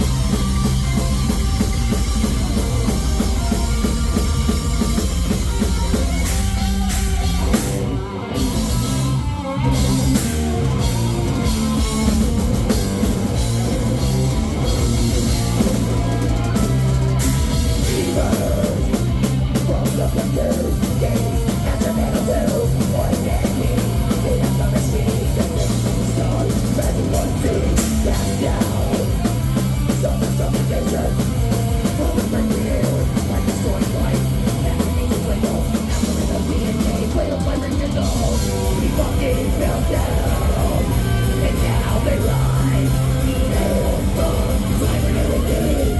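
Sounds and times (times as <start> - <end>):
heavy metal band playing live: 0.0 - 45.9.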